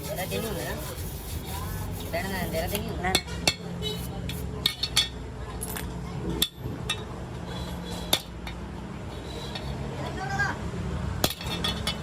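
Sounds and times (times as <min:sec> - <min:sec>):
hand tools clinking on metal: 0:11.2 - 0:12.0.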